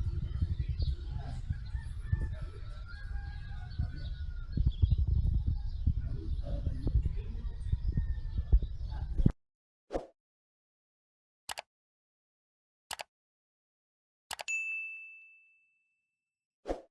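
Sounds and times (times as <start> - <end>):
bright ding: 14.5 - 15.8.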